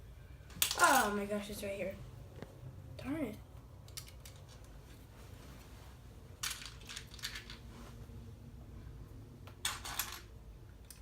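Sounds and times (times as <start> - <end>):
plastic pieces clattering: 6.4 - 7.6, 9.6 - 10.3.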